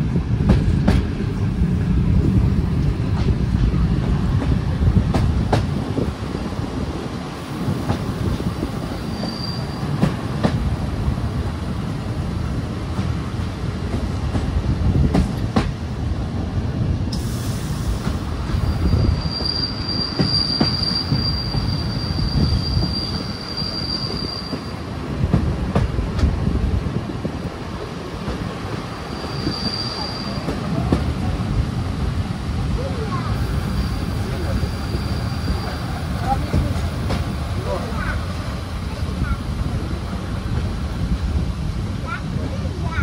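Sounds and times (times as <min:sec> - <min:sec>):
train rumbling: 0:00.0 - 0:43.0
high wheel squeal: 0:08.9 - 0:10.0, 0:18.5 - 0:24.8, 0:29.0 - 0:30.6, 0:33.4 - 0:36.4.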